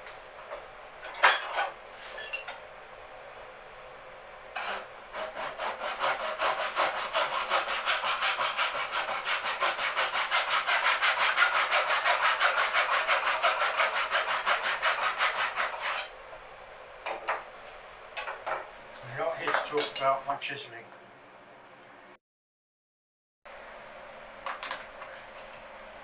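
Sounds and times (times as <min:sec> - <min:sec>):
hand tool rubbing on wood: 0:04.6 - 0:16.1.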